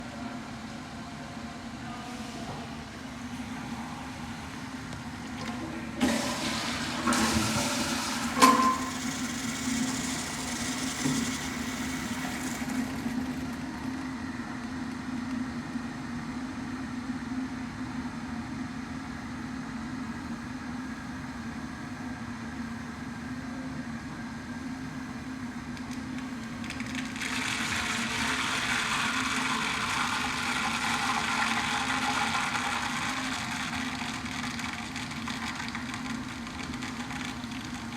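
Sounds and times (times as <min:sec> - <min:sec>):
toilet flushing and refilling: 0:05.1 - 0:14.1, 0:26.4 - 0:37.9.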